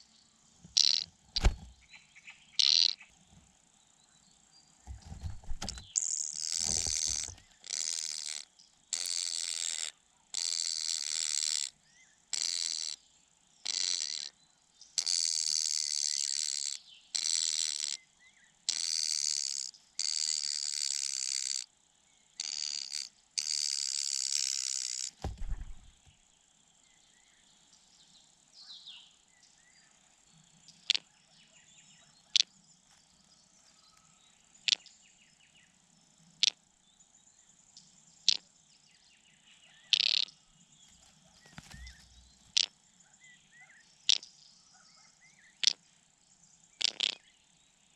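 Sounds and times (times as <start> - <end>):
dull thump: 1.4 - 1.8, 4.9 - 5.9, 6.6 - 7.5, 25.2 - 26.2
young birds rasping begging calls: 5.7 - 8.4.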